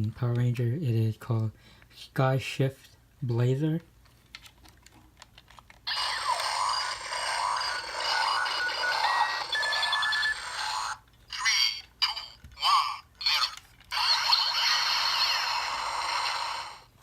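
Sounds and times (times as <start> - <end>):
toy blaster electronic beeping: 5.9 - 16.8
toy blaster short sounds: 5.9 - 16.8.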